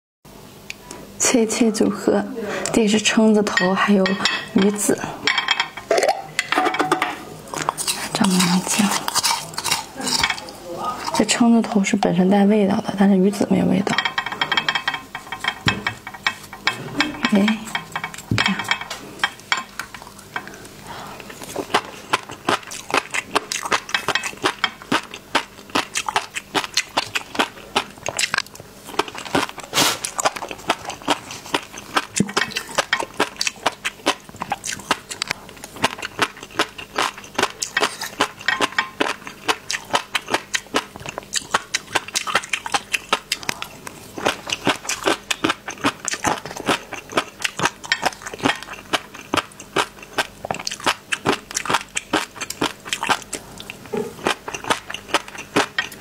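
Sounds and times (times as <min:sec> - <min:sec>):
wet chewing clicks and pops: 0:21.3 - 0:56.0.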